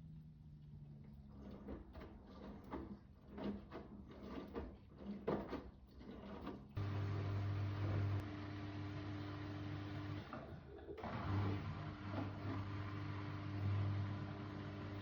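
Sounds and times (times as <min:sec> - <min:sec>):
loud steady machine hum: 0:06.8 - 0:10.4, 0:11.0 - 0:15.0.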